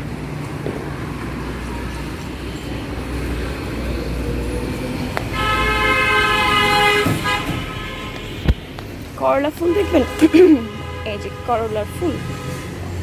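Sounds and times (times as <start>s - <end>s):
road traffic rumble: 0.0s - 13.0s
vehicle horn blast: 5.3s - 8.7s, 9.6s - 12.9s.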